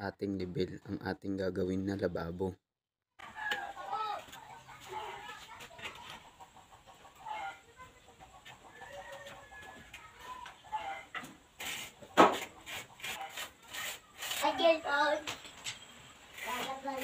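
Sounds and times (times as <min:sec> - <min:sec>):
fowl clucking: 0:03.4 - 0:09.8, 0:10.6 - 0:13.6.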